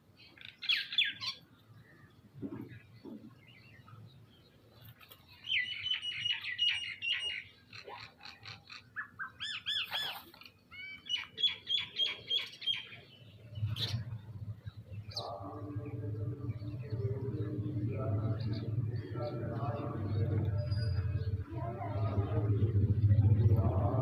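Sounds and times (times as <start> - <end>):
birds chirping: 0.2 - 24.0
low hum with pitched tone: 13.1 - 24.0.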